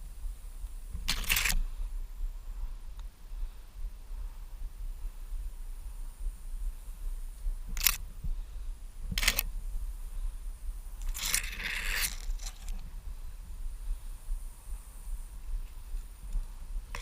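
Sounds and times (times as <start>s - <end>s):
steady low rumble: 0.0s - 17.0s
scraping rustling noises: 1.0s - 1.8s, 11.0s - 12.9s.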